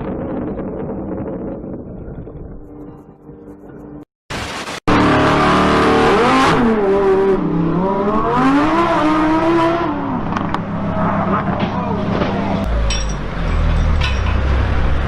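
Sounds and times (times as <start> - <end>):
car engine revving: 4.9 - 13.8.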